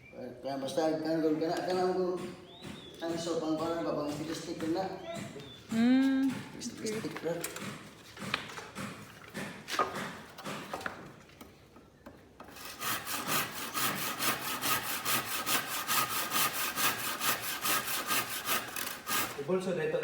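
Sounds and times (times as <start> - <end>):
handsaw sawing wooden plank: 12.4 - 19.6.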